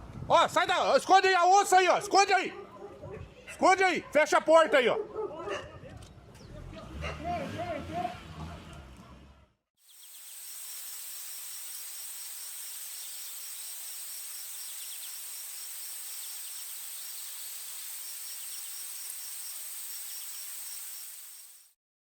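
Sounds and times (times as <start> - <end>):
cricket chirping: 9.8 - 21.7
high-pitched insect whine: 9.8 - 21.8
steady hiss: 9.8 - 21.8.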